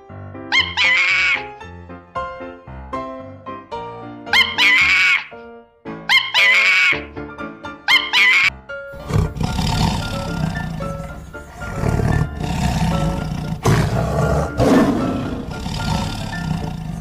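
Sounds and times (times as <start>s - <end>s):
background music: 0.0s - 17.0s
wild animal roaring and growling: 8.9s - 17.0s.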